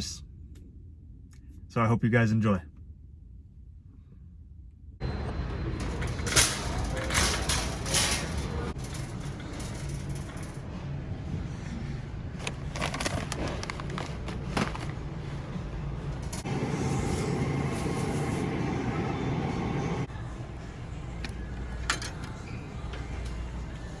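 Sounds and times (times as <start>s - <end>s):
low hum: 2.6s - 24.0s
steady rumbling: 3.2s - 21.8s.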